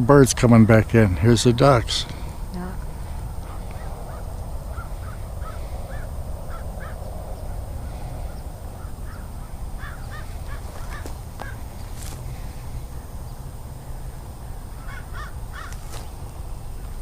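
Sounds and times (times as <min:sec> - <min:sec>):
birds calling: 0:00.0 - 0:17.0
steady low rumble: 0:00.0 - 0:17.0.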